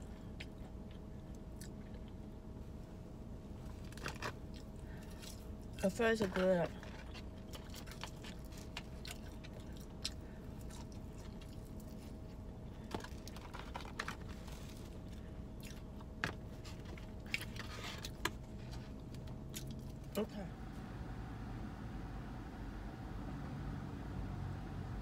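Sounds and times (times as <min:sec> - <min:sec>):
chewing fried food: 0:00.0 - 0:02.5, 0:03.8 - 0:05.9, 0:06.8 - 0:20.2
faint steady hum: 0:00.0 - 0:25.0.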